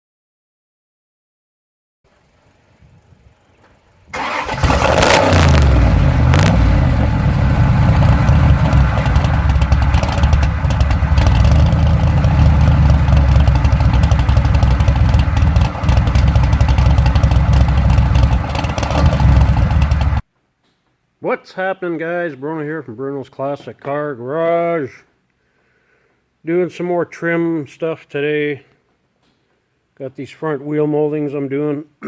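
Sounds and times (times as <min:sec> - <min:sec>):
car engine starting and running: 0:03.5 - 0:20.2.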